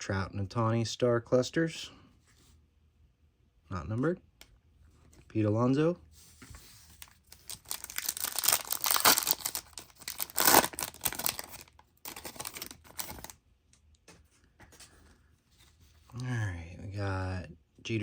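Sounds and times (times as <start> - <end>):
wrapper tearing and crinkling: 7.0 - 13.4.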